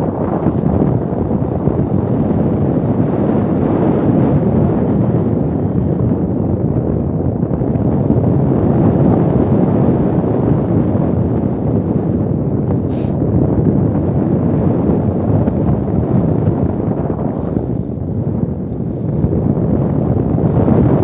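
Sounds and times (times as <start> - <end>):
strong wind buffeting microphone: 0.0 - 21.0
brief high hiss: 12.9 - 13.2.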